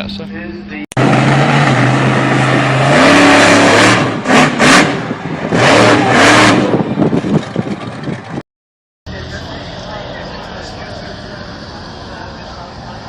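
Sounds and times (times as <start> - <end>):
car engine revving: 1.0 - 8.3.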